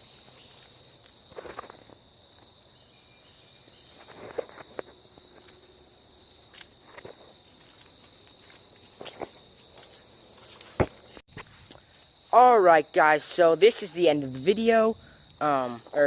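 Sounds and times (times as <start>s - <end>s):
footsteps on ground: 0.0s - 2.6s, 3.8s - 12.4s
high-pitched insect call: 0.0s - 16.0s.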